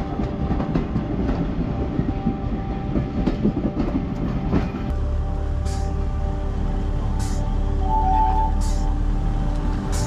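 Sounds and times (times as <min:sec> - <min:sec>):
train wheels clattering on rails: 0:00.0 - 0:04.9.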